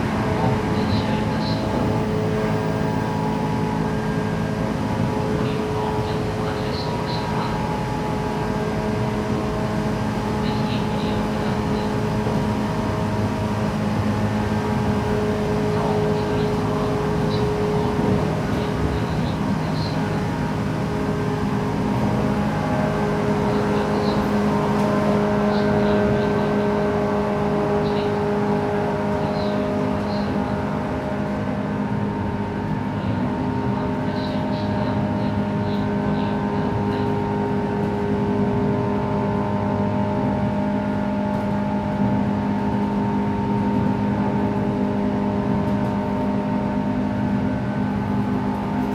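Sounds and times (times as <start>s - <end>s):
train motor hum: 0.0s - 31.5s.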